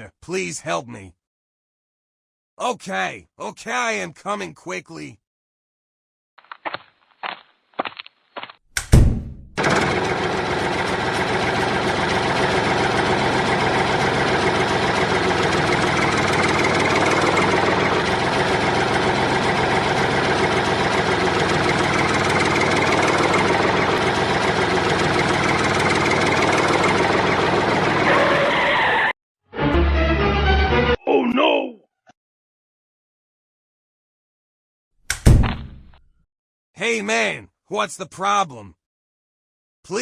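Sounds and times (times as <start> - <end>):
tractor engine running: 9.6 - 28.5.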